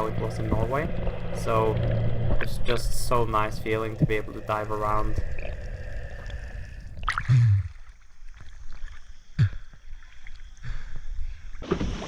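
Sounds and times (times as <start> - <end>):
low gurgling thumps: 0.0 - 8.5
underwater rumble: 0.0 - 11.4.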